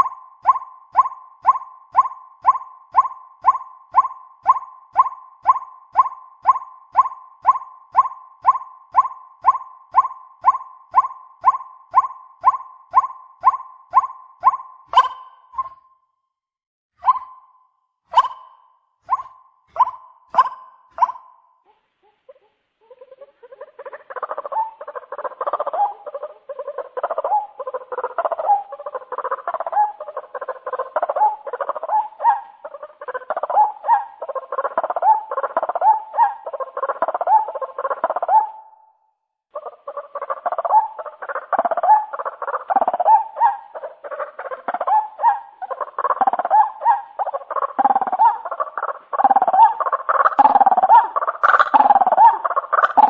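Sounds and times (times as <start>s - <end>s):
waterhen calling: 0.0s - 15.8s, 18.1s - 21.2s, 39.8s - 53.0s.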